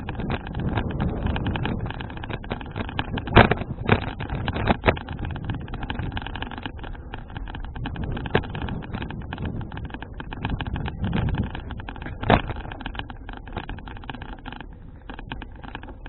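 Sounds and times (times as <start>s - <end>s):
bicycle knocks: 0.0s - 16.0s
bicycle rattles and clicks: 0.0s - 16.0s
wind rumble on microphone: 0.0s - 16.0s.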